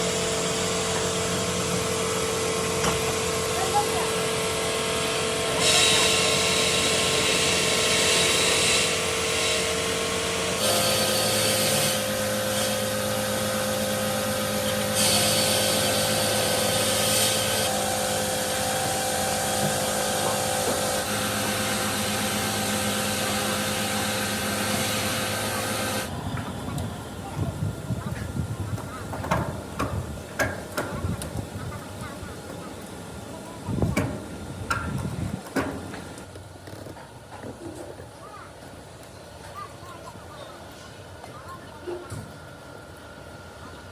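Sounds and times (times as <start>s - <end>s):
high grinding hiss: 0.0s - 26.1s
motor hum: 0.0s - 37.5s.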